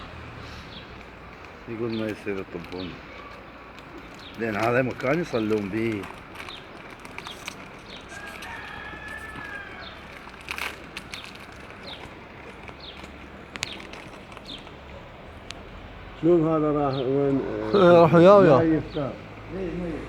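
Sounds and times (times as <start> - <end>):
small birds chirping: 0.0 - 20.0
rooster crowing: 8.0 - 10.9.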